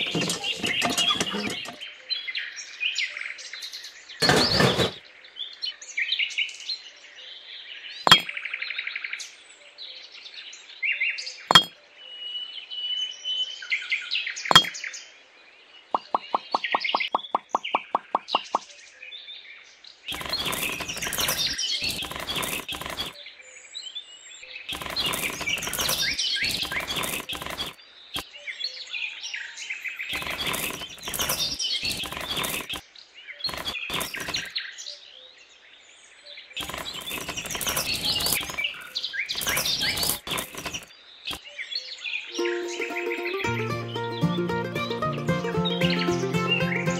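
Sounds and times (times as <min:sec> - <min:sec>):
birds chirping: 0:00.0 - 0:01.8, 0:08.1 - 0:08.5, 0:15.8 - 0:18.8, 0:20.1 - 0:23.2, 0:24.7 - 0:28.4, 0:30.0 - 0:32.8, 0:36.6 - 0:41.6
pebbles clattering onto sand: 0:08.1 - 0:08.3, 0:20.1 - 0:23.2, 0:24.7 - 0:27.8, 0:30.1 - 0:32.8, 0:33.5 - 0:34.5, 0:36.6 - 0:40.9.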